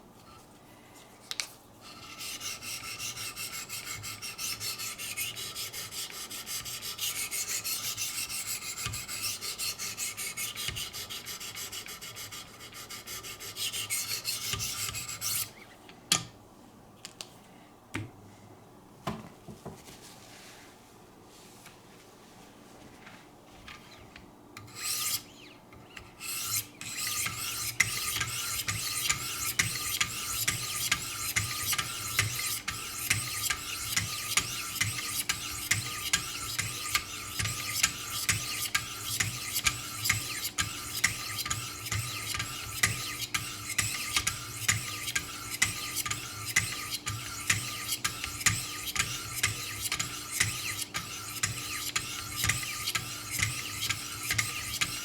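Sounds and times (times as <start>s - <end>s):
sharpening stones scraping knife edge: 26.4s - 55.0s.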